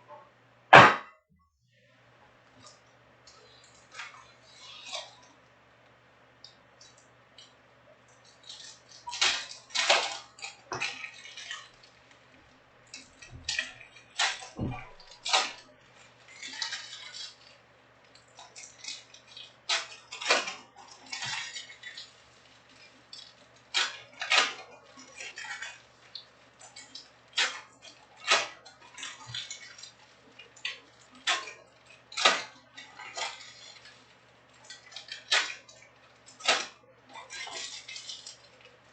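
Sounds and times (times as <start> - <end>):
wrappers crinkling and ripping: 12.9 - 38.9.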